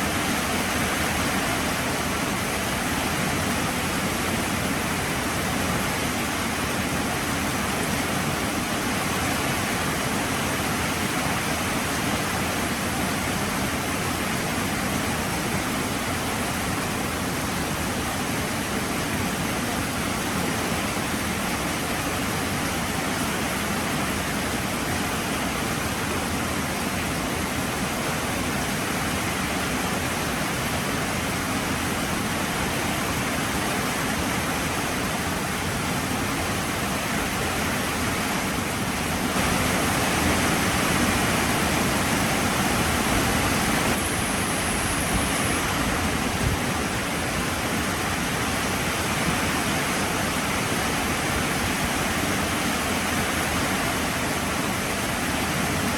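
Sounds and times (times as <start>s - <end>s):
heavy rain falling: 16.4s - 55.9s.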